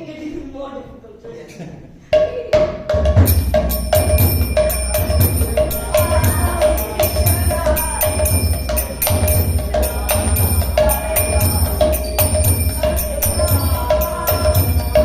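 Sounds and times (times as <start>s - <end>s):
deep drum beat: 2.2s - 15.0s
hand cymbals ringing: 3.2s - 15.0s.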